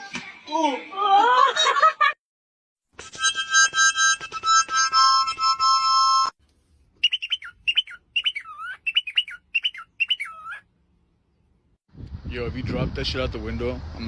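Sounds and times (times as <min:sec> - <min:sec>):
bird chirping whistles: 0:07.0 - 0:10.6.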